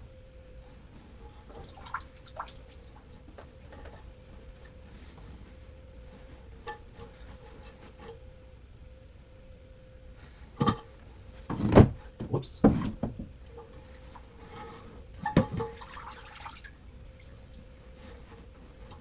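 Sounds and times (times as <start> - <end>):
water dripping and splashing: 1.5 - 4.6, 15.6 - 17.7.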